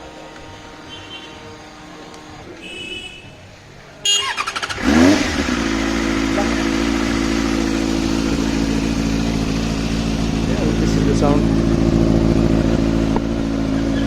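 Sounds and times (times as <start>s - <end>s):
motorcycle starter cranking: 4.1s - 8.1s
motorcycle engine idling: 4.1s - 14.0s.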